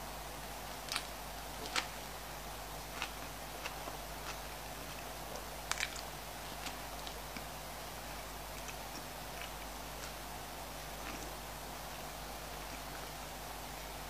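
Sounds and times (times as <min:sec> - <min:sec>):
wet chewing mouth clicks: 0:08.5 - 0:10.2.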